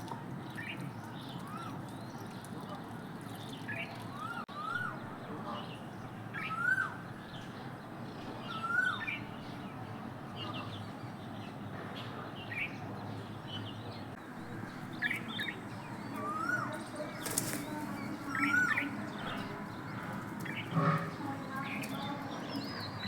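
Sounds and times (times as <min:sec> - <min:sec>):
small birds chirping: 0:00.0 - 0:23.0
peafowl calling: 0:14.3 - 0:23.0.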